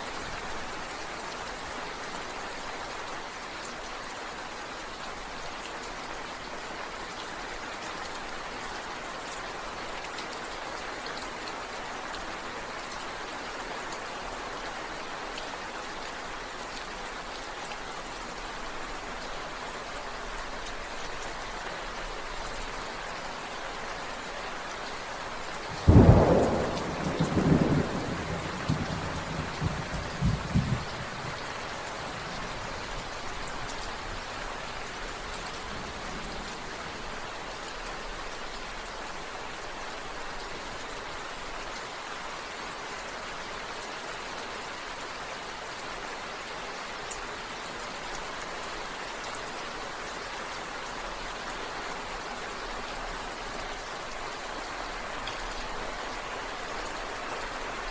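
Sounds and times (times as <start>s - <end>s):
steady rain falling: 0.0s - 57.9s
rolling thunderclap: 25.8s - 31.3s.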